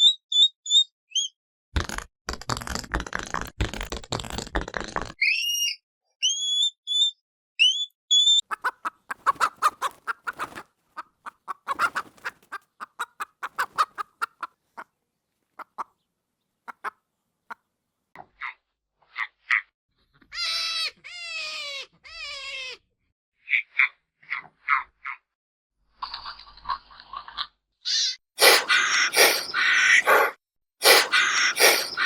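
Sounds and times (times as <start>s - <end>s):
dense rasping noise: 28.4s - 32.0s
short high rising chirps: 28.4s - 32.0s.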